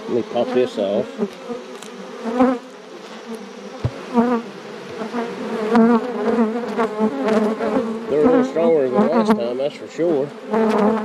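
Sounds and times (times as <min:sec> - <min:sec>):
honeybees buzzing: 0:00.0 - 0:11.0
bees swooping close by: 0:00.2 - 0:09.4
light knock: 0:03.8 - 0:04.0.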